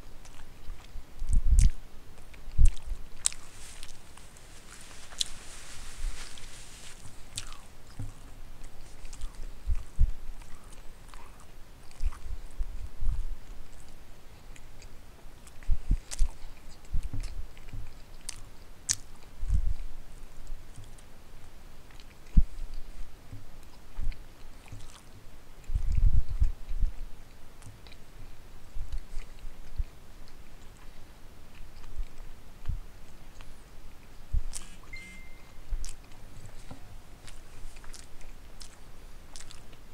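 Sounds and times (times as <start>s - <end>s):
person chewing food: 0.2s - 19.8s, 23.6s - 26.8s, 27.6s - 28.1s, 28.8s - 39.9s
wet mouth clicks: 34.5s - 34.9s.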